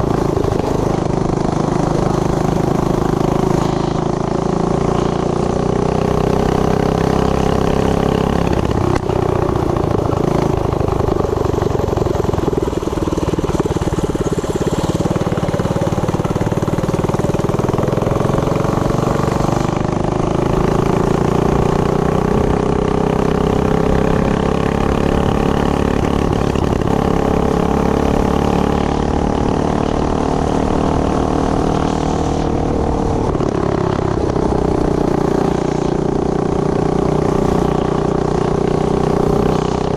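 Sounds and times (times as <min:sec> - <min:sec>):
mini bike engine running: 0:00.0 - 0:39.9.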